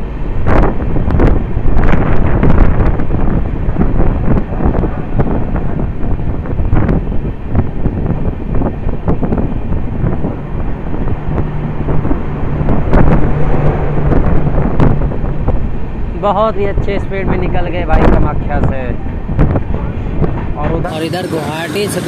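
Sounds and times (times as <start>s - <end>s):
wind rushing over microphone: 0.0s - 22.0s
train wheels clattering over rails: 18.9s - 20.9s.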